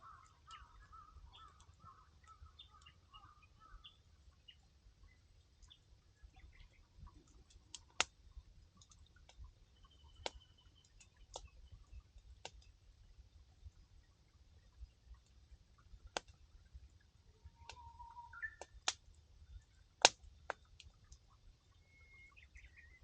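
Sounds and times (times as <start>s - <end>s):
faint bird chirps: 0.0s - 7.4s, 9.2s - 12.8s, 17.3s - 19.8s, 21.4s - 23.0s
campfire crackling: 0.0s - 21.8s.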